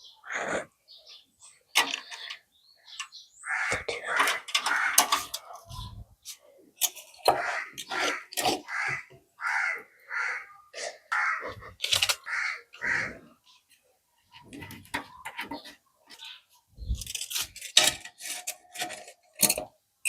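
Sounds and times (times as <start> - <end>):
crow cawing: 3.4 - 5.5, 7.3 - 13.3.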